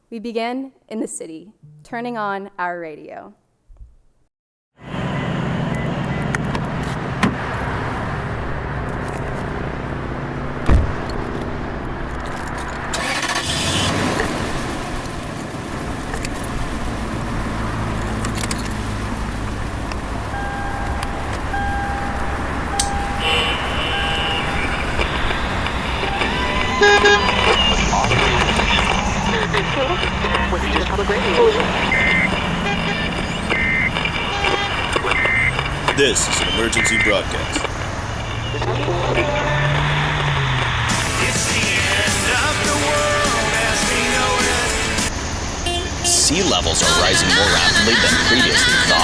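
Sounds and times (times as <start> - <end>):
road traffic rumbling: 4.8 - 49.0
two-tone beeping: 20.3 - 39.6.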